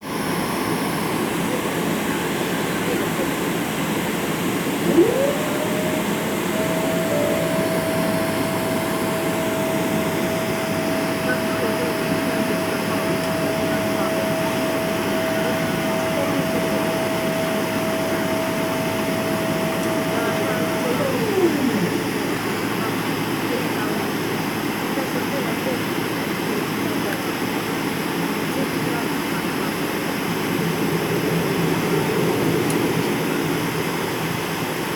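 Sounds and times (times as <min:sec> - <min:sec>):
steady whine: 0:00.0 - 0:27.2.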